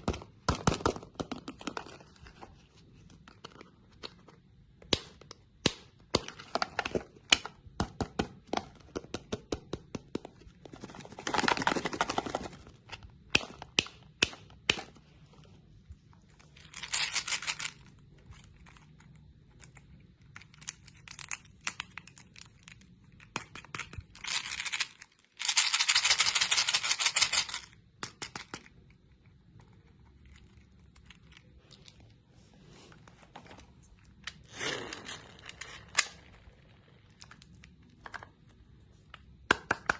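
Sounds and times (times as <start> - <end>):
hard candy cracking and crunching: 16.2 - 32.2, 33.6 - 39.9.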